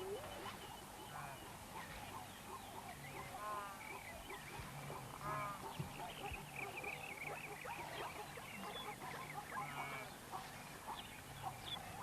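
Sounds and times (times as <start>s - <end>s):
drawn-out animal calls: 2.2s - 12.0s.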